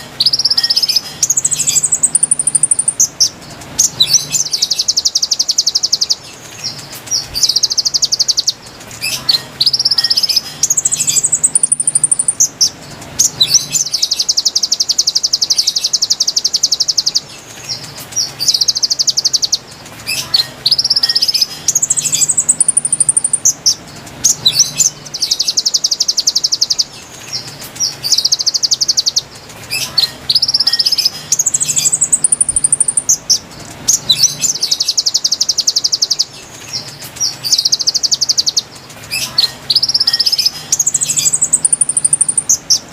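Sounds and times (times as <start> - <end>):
bird song with rapid trills: 0.0 - 42.9.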